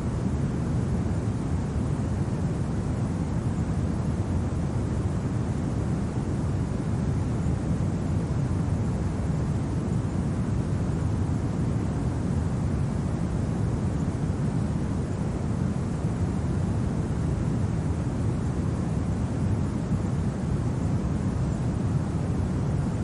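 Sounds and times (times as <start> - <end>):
low rumble of wind: 0.0 - 23.0.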